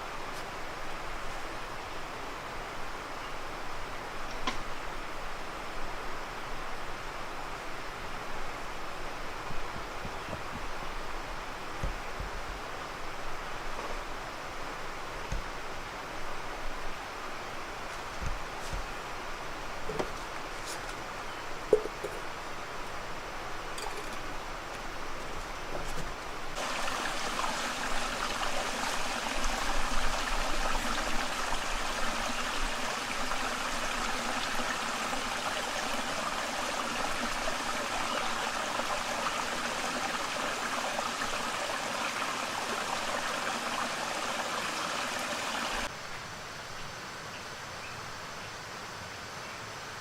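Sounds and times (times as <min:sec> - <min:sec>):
water running: 0:26.6 - 0:45.9.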